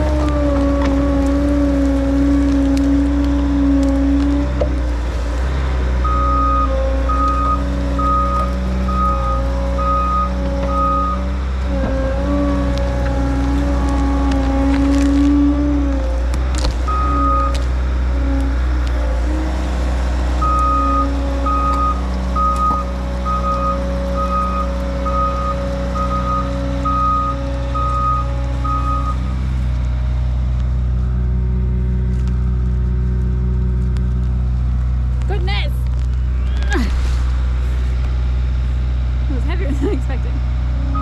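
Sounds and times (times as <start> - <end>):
skid steer engine running: 0.0 - 41.0
backup alarm beeping: 6.0 - 11.2, 16.9 - 17.5, 20.4 - 29.2.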